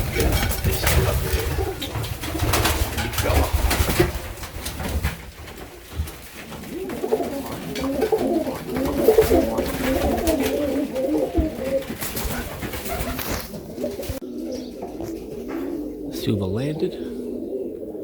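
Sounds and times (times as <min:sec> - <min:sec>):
pigeons cooing: 0:00.0 - 0:18.0.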